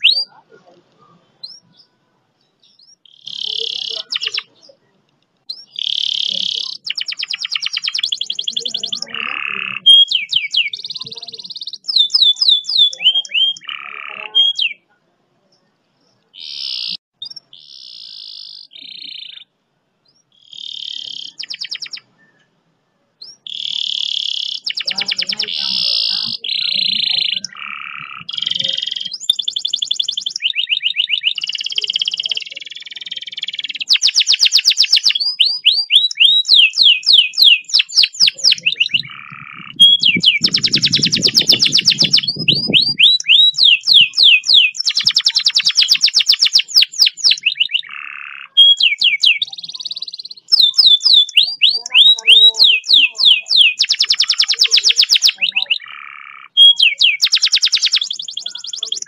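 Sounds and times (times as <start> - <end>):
canary singing trills: 0.0 - 22.5, 23.2 - 59.0.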